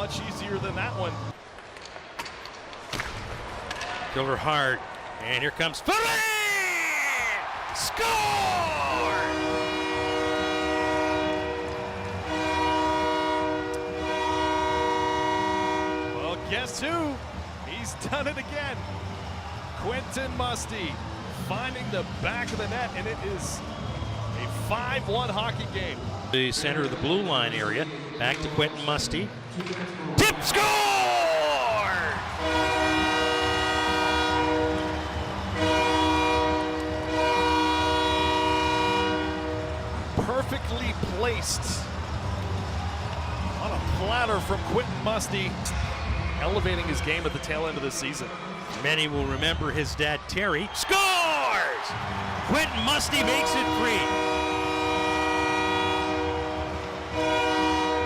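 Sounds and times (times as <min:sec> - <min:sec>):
goal horn blasts: 0:08.6 - 0:16.8, 0:32.2 - 0:39.9, 0:52.6 - 0:58.0.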